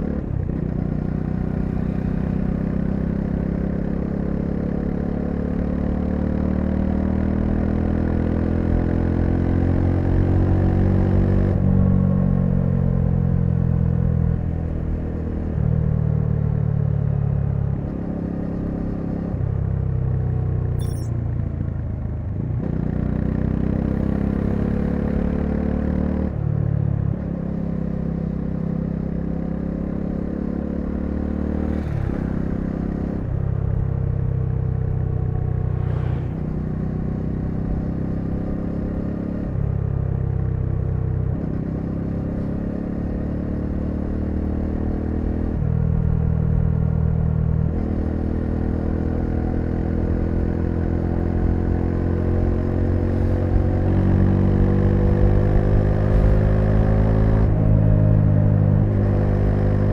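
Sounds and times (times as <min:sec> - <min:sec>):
motorcycle engine accelerating: 0:27.2 - 0:59.9.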